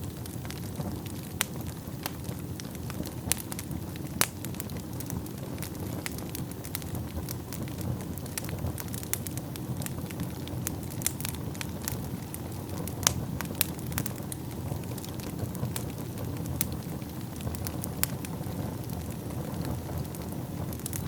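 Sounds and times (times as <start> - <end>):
fire crackles and pops: 0.0 - 21.0
low rumble of flames: 0.0 - 21.0.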